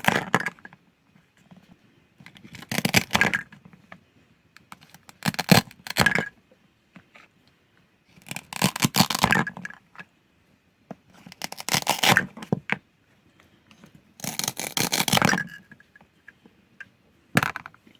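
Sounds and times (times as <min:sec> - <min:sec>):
toy knife cutting toy food: 0:02.5 - 0:03.4, 0:04.8 - 0:06.2, 0:08.2 - 0:09.5, 0:11.4 - 0:12.3, 0:14.2 - 0:15.5.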